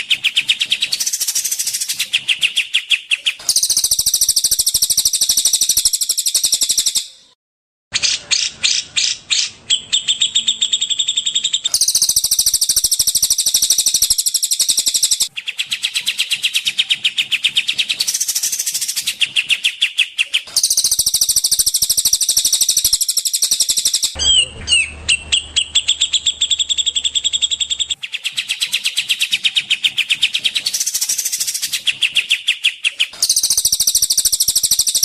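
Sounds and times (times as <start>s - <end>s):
songbird singing fast trills: 0.0s - 7.2s, 8.4s - 35.0s.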